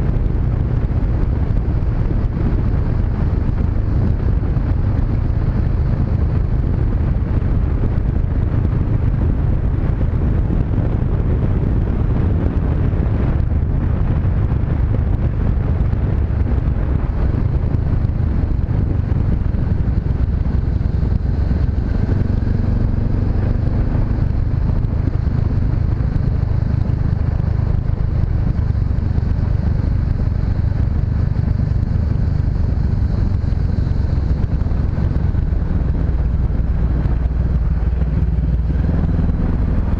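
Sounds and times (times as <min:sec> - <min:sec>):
motorcycle engine cruising: 0:00.0 - 0:39.9
wind noise on microphone: 0:00.0 - 0:39.9.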